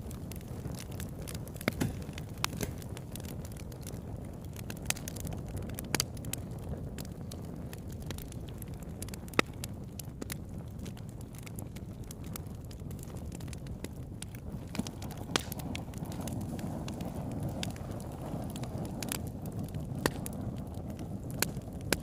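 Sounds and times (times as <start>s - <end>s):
wood crackling and popping: 0.0s - 22.0s
wood fire rumble: 0.0s - 22.0s.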